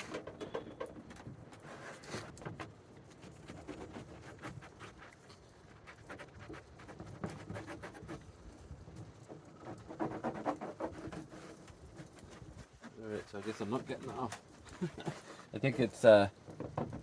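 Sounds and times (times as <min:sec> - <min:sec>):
paper towel scrubbing plastic: 0:09.5 - 0:16.3.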